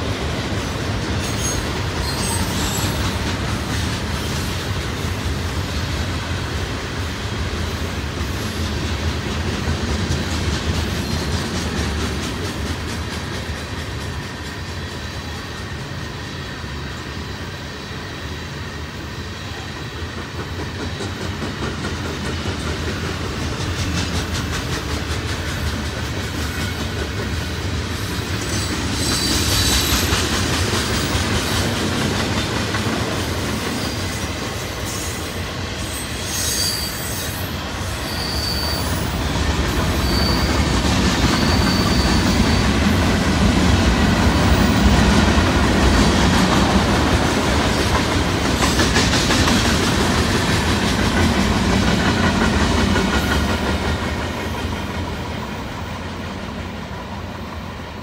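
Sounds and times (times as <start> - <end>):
freight train rumbling on rails: 0.0 - 58.0
high wheel squeals: 1.2 - 3.2, 28.0 - 30.2, 35.8 - 42.9.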